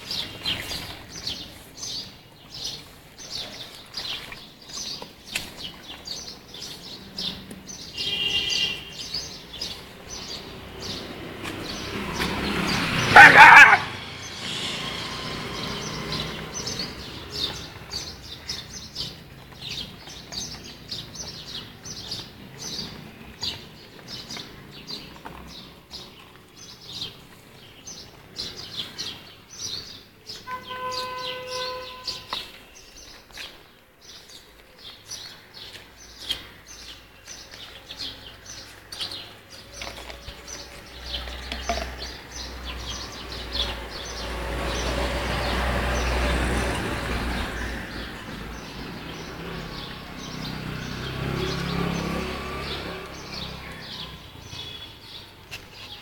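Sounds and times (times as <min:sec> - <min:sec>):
small birds chirping: 0:00.0 - 0:56.0
loud burst of noise: 0:14.0 - 0:15.8.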